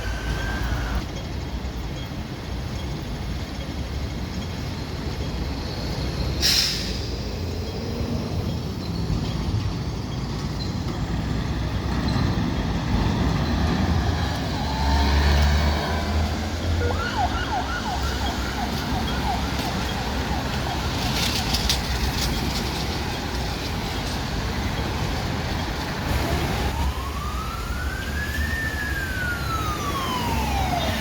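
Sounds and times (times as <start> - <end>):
heavy vehicles rumbling: 0.0 - 31.0
air brake hiss: 6.4 - 7.3.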